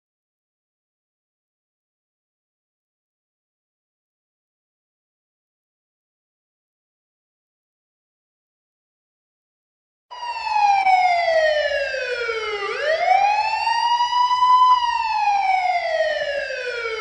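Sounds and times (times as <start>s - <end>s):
siren wailing: 10.1s - 17.0s.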